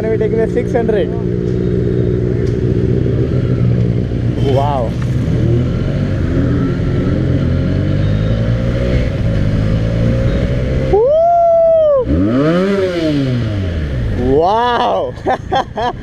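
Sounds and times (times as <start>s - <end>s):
motorcycle engine revving: 0.0s - 11.0s, 11.6s - 14.9s.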